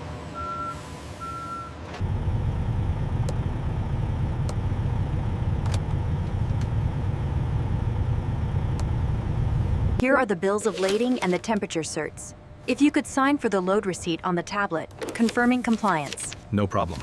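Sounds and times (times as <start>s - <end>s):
truck engine rumbling: 1.2s - 10.0s.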